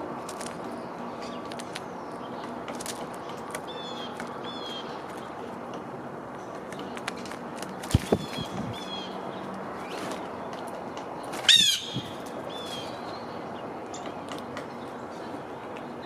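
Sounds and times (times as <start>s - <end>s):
steady outdoor hiss: 0.0s - 16.0s
high bird chirps: 11.5s - 12.8s.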